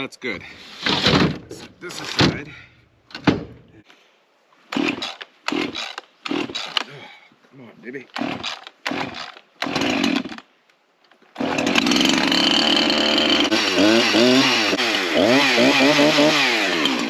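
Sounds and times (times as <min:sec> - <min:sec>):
chainsaw starting and revving: 0:04.7 - 0:06.9, 0:08.1 - 0:10.4, 0:11.4 - 0:17.0.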